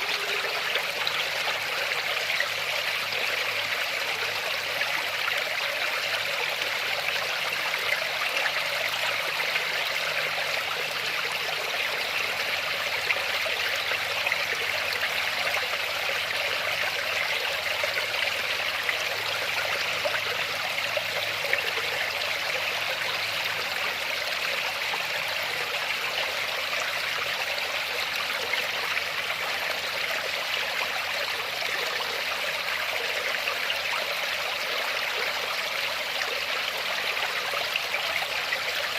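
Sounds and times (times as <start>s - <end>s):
waterfall rushing: 0.0s - 0.9s.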